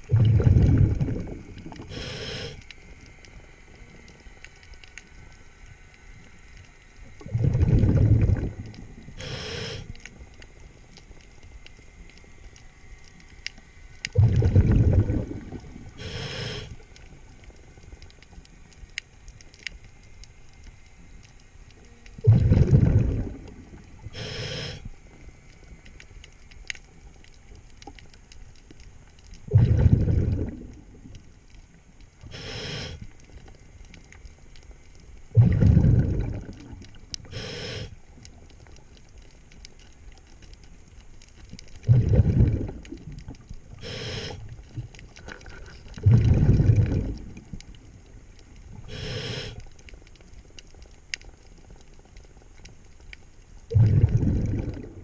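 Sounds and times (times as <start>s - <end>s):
bubbling exhale through regulator: 0.0s - 2.8s, 7.1s - 10.0s, 14.1s - 16.9s, 22.2s - 24.9s, 29.4s - 31.2s, 32.2s - 33.1s, 35.3s - 38.0s, 41.8s - 47.8s, 48.7s - 49.7s, 53.7s - 55.0s
hissing inhale through regulator: 0.1s - 2.9s, 7.2s - 10.1s, 14.2s - 17.0s, 22.2s - 25.0s, 32.2s - 33.2s, 35.3s - 38.1s, 43.7s - 47.2s, 48.7s - 49.8s.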